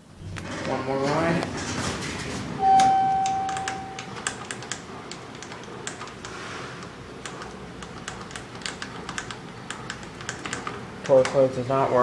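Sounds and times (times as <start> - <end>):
elevator button clicks: 2.6 - 4.2
elevator chime tone: 2.6 - 4.2.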